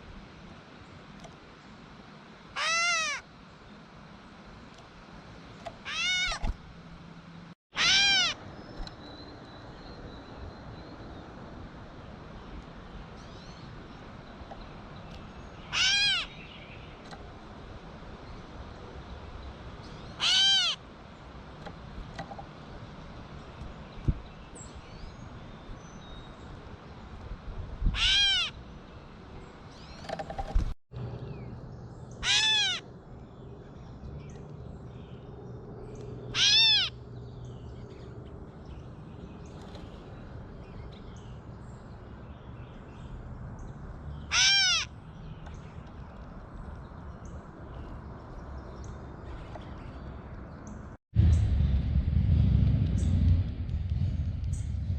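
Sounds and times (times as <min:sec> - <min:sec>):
bird mew call: 0:02.6 - 0:03.2, 0:05.8 - 0:06.5, 0:07.8 - 0:08.4, 0:15.7 - 0:16.4, 0:20.2 - 0:20.8, 0:28.0 - 0:28.6, 0:32.2 - 0:32.8, 0:36.3 - 0:37.0, 0:44.3 - 0:44.9.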